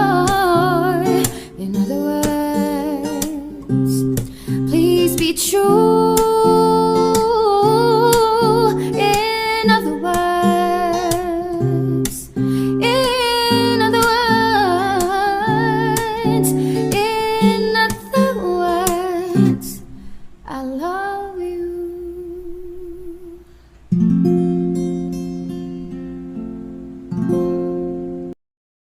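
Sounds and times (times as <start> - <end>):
person singing: 0.0 - 19.9, 20.5 - 23.5
plucked acoustic guitar: 0.0 - 28.4.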